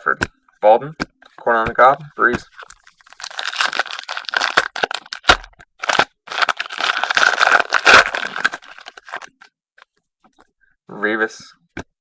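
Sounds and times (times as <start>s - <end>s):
foil wrapper crinkling and tearing: 2.6s - 9.5s.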